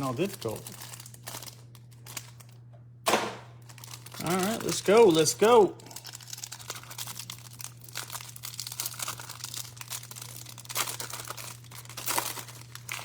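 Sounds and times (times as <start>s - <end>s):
packaging crinkling and tearing: 0.0s - 2.7s, 3.5s - 13.0s
plastic wrap crackling: 0.0s - 2.7s, 3.4s - 13.0s.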